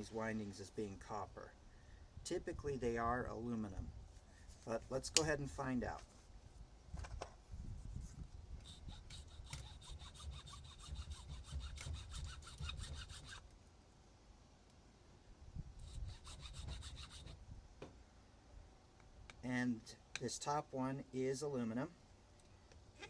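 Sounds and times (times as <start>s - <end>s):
hand tool scraping metal windings: 8.6s - 13.4s, 15.9s - 17.4s.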